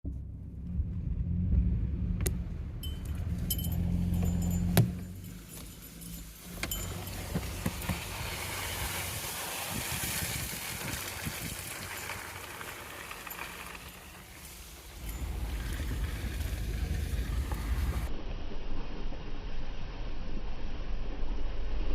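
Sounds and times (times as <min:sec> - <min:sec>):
vehicle engine rumble: 0:00.0 - 0:21.9
tyres rushing through brush: 0:02.4 - 0:18.1.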